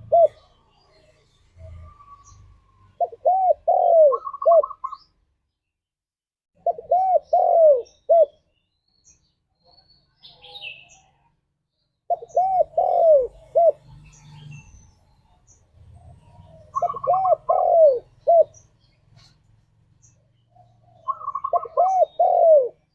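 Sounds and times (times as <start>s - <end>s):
dove cooing: 0.0s - 0.6s, 1.6s - 5.0s, 6.6s - 8.4s, 12.1s - 13.9s, 16.0s - 19.4s, 20.5s - 22.9s
small bird chirping: 6.7s - 22.9s.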